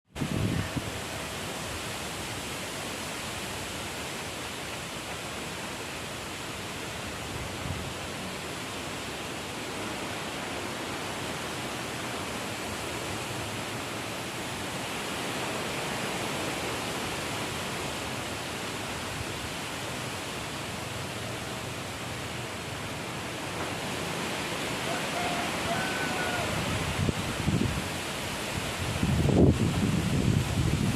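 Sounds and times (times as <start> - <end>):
strong storm wind blowing: 0.1 - 2.0, 22.5 - 30.9.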